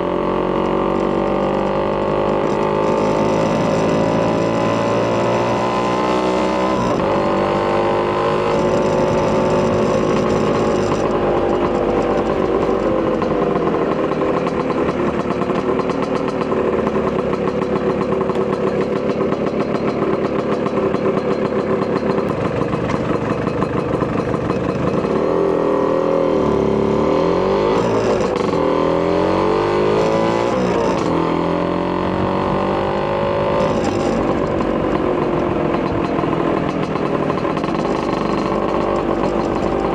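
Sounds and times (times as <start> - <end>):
scooter engine revving: 0.0 - 39.9.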